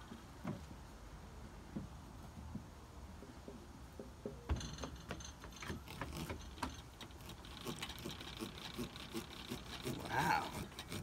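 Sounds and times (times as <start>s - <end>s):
knife sawing through pumpkin: 7.6s - 11.0s.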